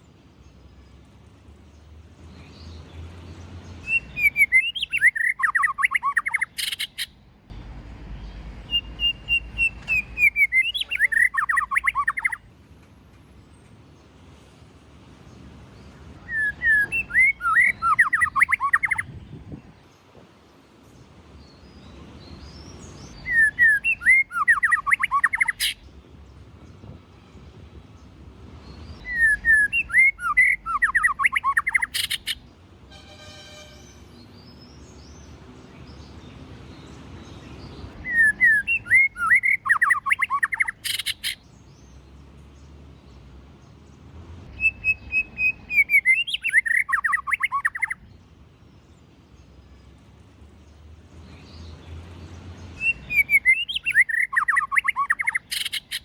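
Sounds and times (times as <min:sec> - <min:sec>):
bird singing whistled phrases: 0:03.8 - 0:07.1, 0:08.7 - 0:12.4, 0:16.2 - 0:19.1, 0:23.2 - 0:25.8, 0:29.0 - 0:32.4, 0:38.0 - 0:41.4, 0:44.5 - 0:48.0, 0:52.8 - 0:56.0.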